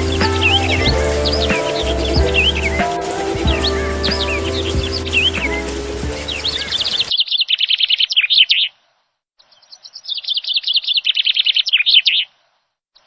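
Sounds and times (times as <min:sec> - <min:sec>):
background music: 0:00.0 - 0:07.1
songbird singing: 0:00.0 - 0:08.6.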